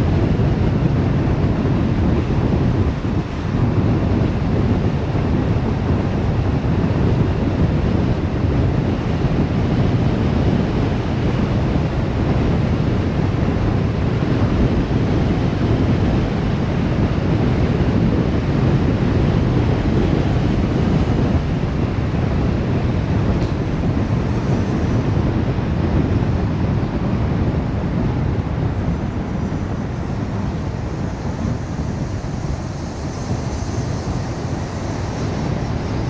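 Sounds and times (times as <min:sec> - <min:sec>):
car road and wind noise: 0:00.0 - 0:36.0.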